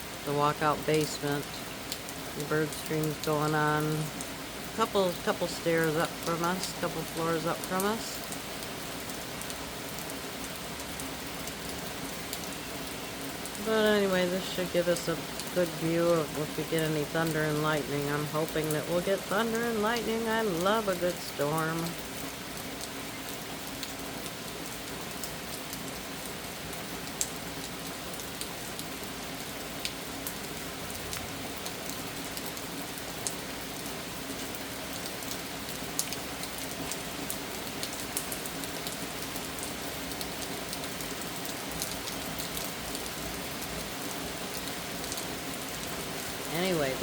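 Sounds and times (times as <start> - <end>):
steady rain falling: 0.0 - 47.0
rain drop ticks: 0.2 - 47.0.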